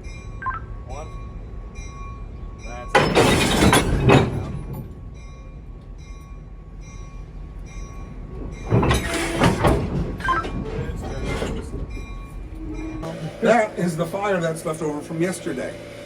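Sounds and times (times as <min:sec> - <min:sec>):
metal clanking and clatter: 0:02.9 - 0:05.0, 0:08.4 - 0:12.2.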